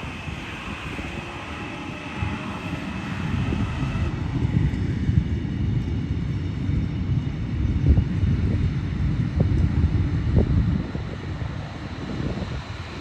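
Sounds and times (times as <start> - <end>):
faint high whine: 0.0 - 5.0
train rumbling: 0.0 - 13.0.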